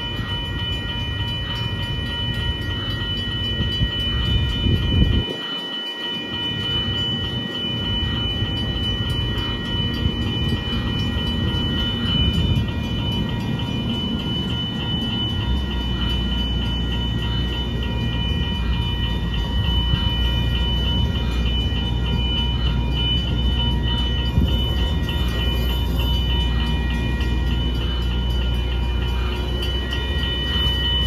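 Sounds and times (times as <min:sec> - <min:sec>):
high-pitched tones: 0:00.0 - 0:31.0
train low rumble: 0:00.0 - 0:31.0.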